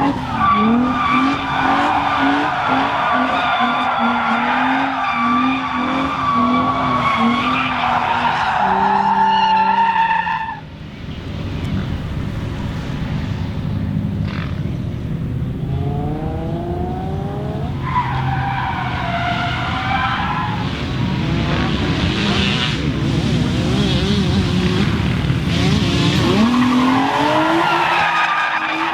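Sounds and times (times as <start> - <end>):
car engine revving: 0.0 - 9.2, 15.6 - 28.9
tyres squealing: 0.0 - 10.5.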